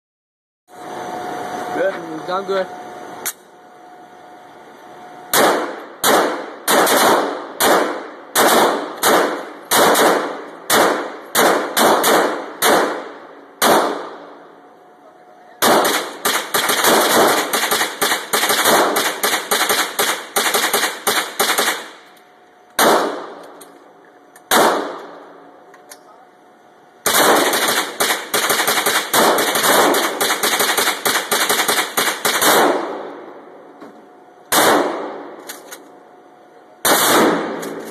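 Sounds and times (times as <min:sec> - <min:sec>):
semi-automatic gunshots: 0:05.3 - 0:14.4, 0:15.6 - 0:22.1, 0:22.8 - 0:23.5, 0:24.5 - 0:25.2, 0:27.0 - 0:33.3, 0:34.5 - 0:35.4, 0:36.8 - 0:37.9.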